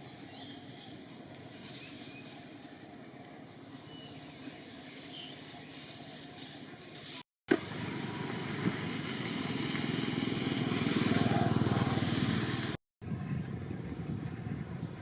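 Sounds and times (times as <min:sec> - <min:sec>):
small engine running: 0:07.5 - 0:15.0.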